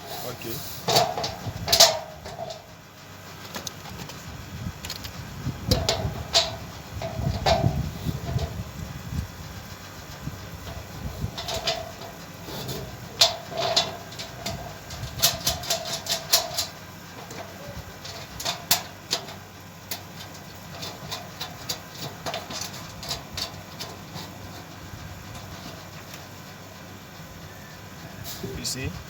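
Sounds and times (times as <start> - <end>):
metal parts knocking and clinking: 0.8 - 2.7, 4.8 - 8.6, 10.6 - 26.2.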